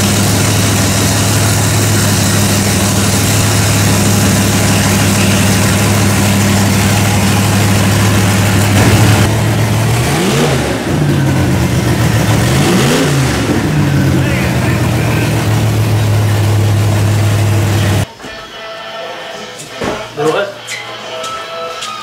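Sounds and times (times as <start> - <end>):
car engine idling and revving: 0.0 - 18.1.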